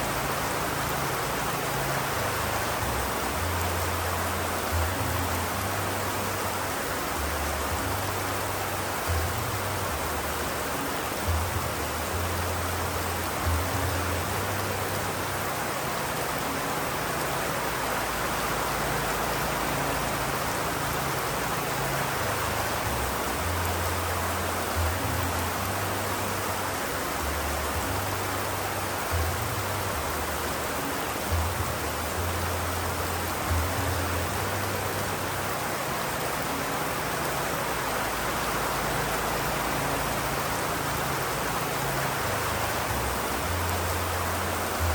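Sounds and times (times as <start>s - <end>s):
steady rain: 0.0s - 44.9s.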